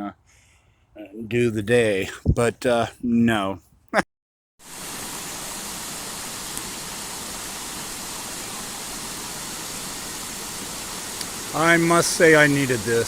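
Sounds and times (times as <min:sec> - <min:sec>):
water rushing: 0:04.6 - 0:13.0.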